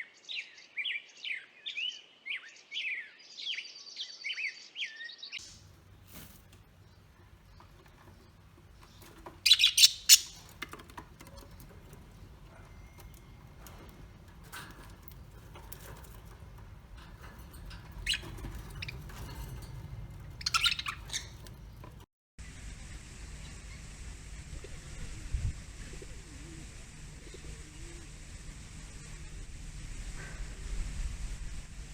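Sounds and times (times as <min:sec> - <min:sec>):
birds calling: 0:05.2 - 0:22.1
outdoor hiss with low rumble: 0:05.4 - 0:31.9.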